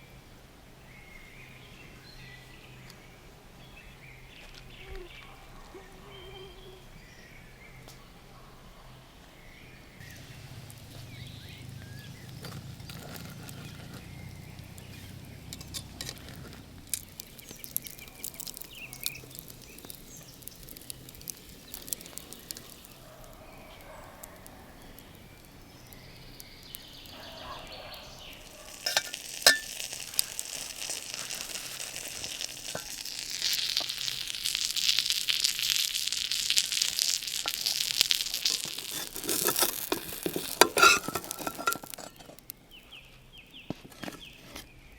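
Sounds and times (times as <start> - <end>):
campfire crackling: 9.4 - 44.4
food sizzling in frying pan: 10.0 - 27.2, 28.0 - 42.2.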